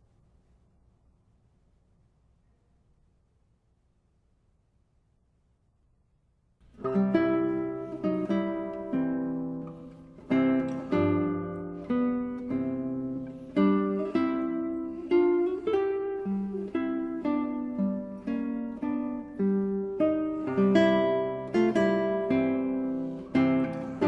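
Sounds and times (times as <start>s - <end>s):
classical guitar music: 6.6s - 24.0s.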